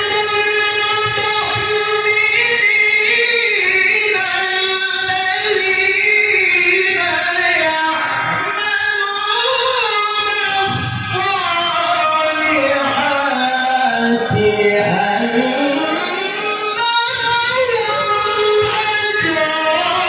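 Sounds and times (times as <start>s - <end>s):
man reciting melodically: 9.9s - 20.0s.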